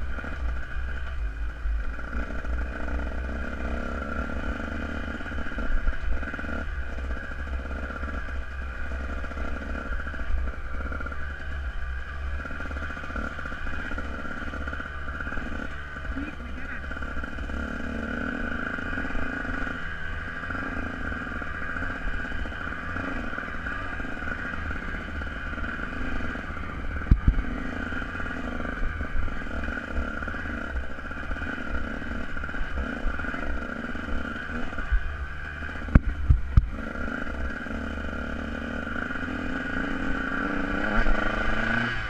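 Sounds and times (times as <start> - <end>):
dirt bike engine running: 0.0 - 42.0
heavy low rumble: 34.7 - 36.8.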